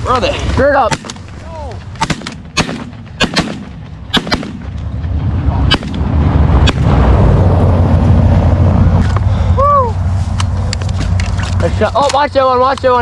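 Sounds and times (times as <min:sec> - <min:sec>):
steady low rumble: 0:00.0 - 0:13.0
shotgun blasts: 0:00.9 - 0:01.3, 0:02.0 - 0:04.8, 0:05.7 - 0:06.9.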